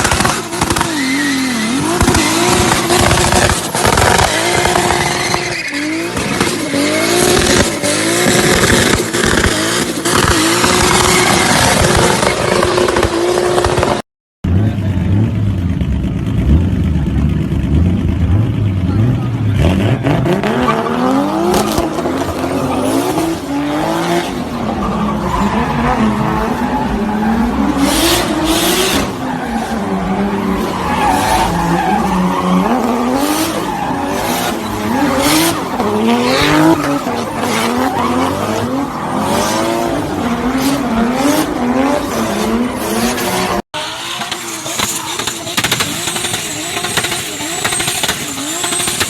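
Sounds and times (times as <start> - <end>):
exhaust pops and bangs: 0.0 - 1.0, 1.8 - 5.5, 6.1 - 14.0, 21.4 - 22.4, 44.2 - 49.0
turbocharged car engine revving: 0.0 - 49.0.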